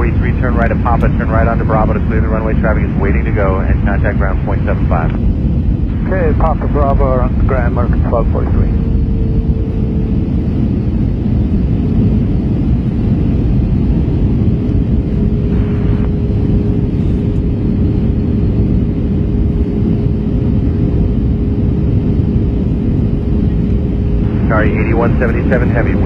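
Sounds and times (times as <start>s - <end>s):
aircraft cabin engine rumble: 0.0s - 26.0s
steady droning tone: 0.0s - 26.0s.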